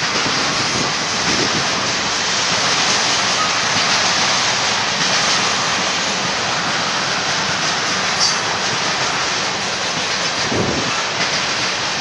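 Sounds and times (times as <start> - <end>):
train wheels rushing on rail: 0.0 - 12.0.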